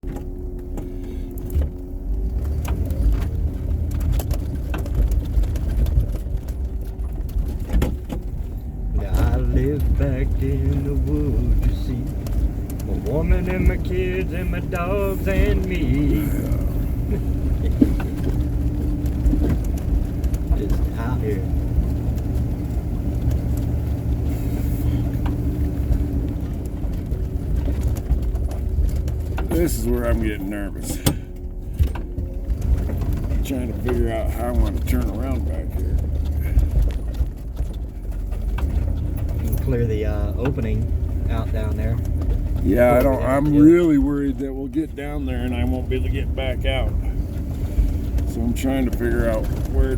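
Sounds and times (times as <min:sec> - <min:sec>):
knocks and clicks: 0:00.0 - 0:24.3
snowplow rumbling: 0:00.0 - 0:49.9.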